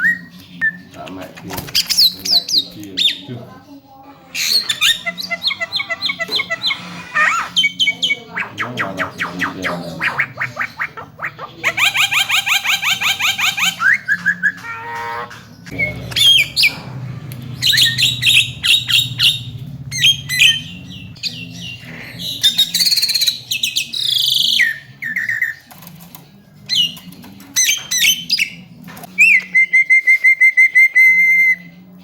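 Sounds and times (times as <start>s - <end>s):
faint low hum: 15.3s - 25.3s
myna singing whistles and chirps: 17.6s - 25.6s.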